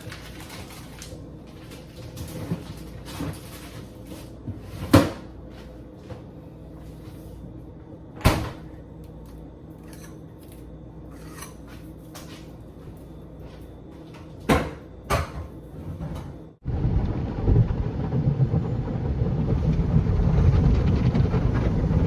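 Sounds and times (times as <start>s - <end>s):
groceries rustling: 0.0s - 4.8s.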